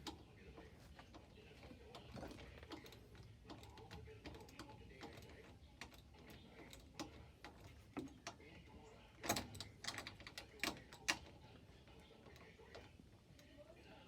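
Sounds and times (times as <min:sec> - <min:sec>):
tools clicking and tapping: 0:01.0 - 0:08.6.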